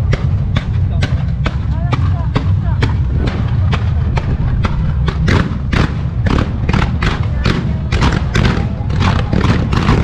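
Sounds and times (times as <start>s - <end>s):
low rumble: 0.0s - 10.0s
fireworks bursting: 2.4s - 10.0s.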